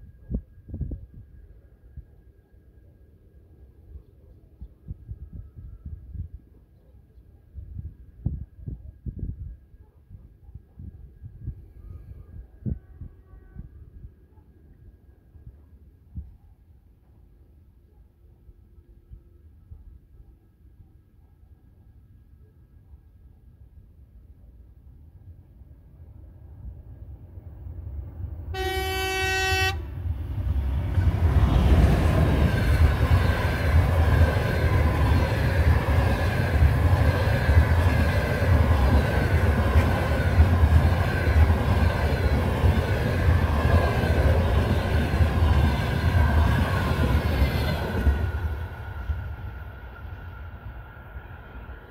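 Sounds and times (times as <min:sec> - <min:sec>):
train rushing past: 0:28.1 - 0:51.9
locomotive horn blast: 0:28.5 - 0:29.9.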